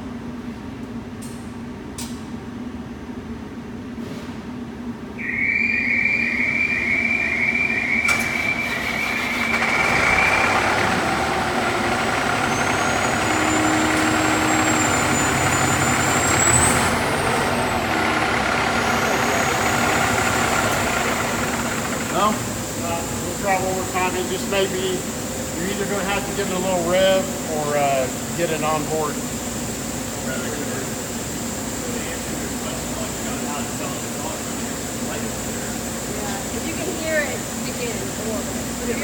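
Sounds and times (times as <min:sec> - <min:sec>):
truck engine cranking and running: 0:07.5 - 0:28.3.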